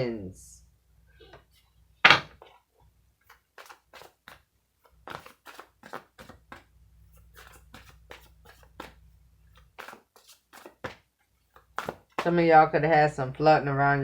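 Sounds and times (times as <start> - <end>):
cards shuffling: 3.2 - 12.4.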